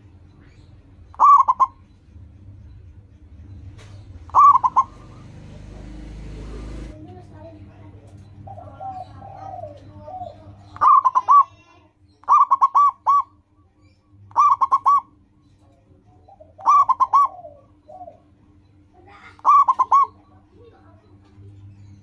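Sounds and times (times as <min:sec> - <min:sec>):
dove cooing: 0:01.1 - 0:02.0, 0:03.7 - 0:07.0, 0:08.3 - 0:13.4, 0:14.3 - 0:15.2, 0:16.1 - 0:21.8.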